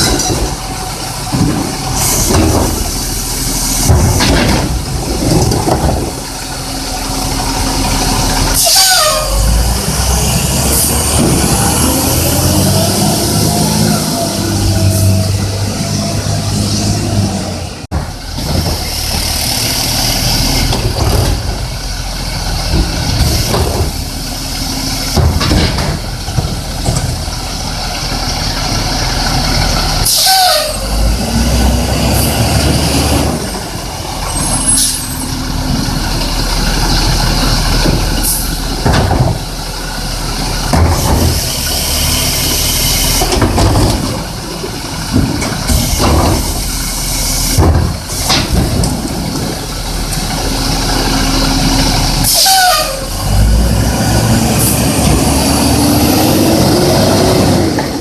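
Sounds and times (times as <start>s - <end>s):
garbage truck engine rumbling: 0.0s - 58.0s
brake squeal: 6.5s - 17.9s, 27.5s - 38.8s, 49.6s - 57.7s.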